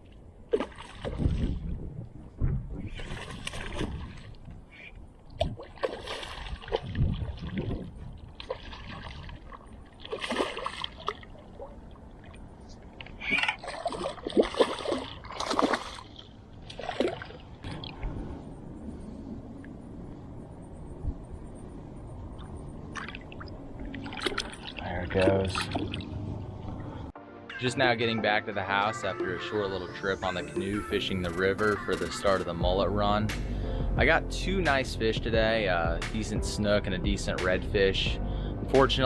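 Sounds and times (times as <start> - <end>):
water splashing against canoe: 0.5 - 1.7, 2.9 - 4.5, 5.4 - 18.0.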